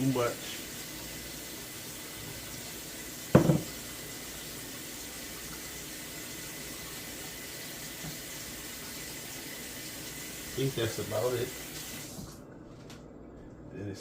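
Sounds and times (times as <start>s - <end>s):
running tap water: 0.0s - 12.4s
loud thump: 3.4s - 3.7s.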